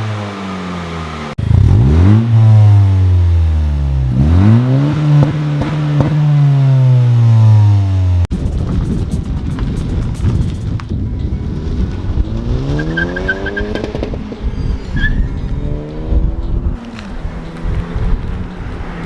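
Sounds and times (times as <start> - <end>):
car engine revving: 0.0 - 8.3, 11.6 - 19.0
rough noisy engine: 0.0 - 8.3.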